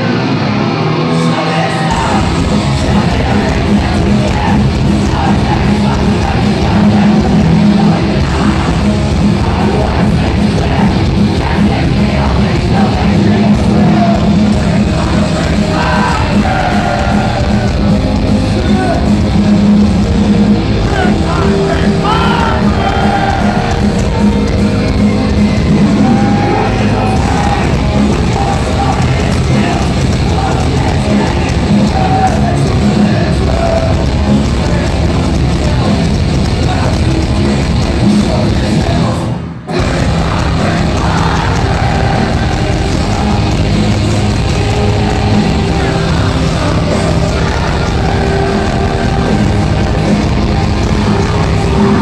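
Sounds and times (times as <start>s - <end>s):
heavy rock band playing: 0.0s - 52.0s
vocalist singing and yelling: 0.0s - 52.0s.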